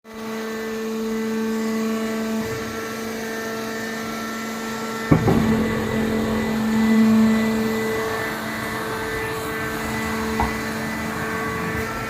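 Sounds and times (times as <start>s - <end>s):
hydraulic power unit humming: 5.1s - 12.0s
loud metal clank: 5.1s - 12.0s.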